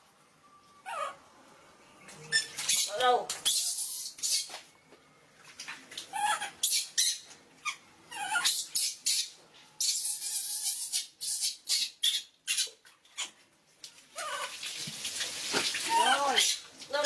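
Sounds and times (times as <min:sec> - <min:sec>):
monkey squeaking: 0:02.2 - 0:04.6, 0:06.1 - 0:13.4
water splashing: 0:14.0 - 0:17.0.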